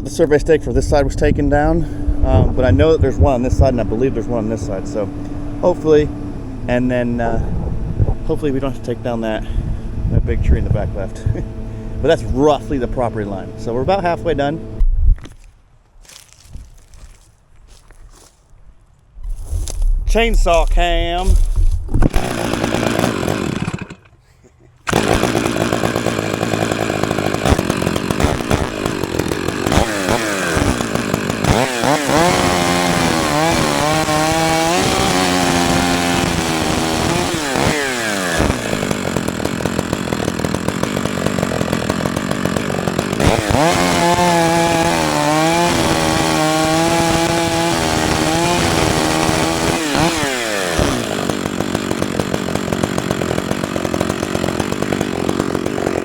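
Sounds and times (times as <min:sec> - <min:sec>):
chainsaw cutting wood: 0:01.6 - 0:14.8, 0:19.4 - 0:56.0.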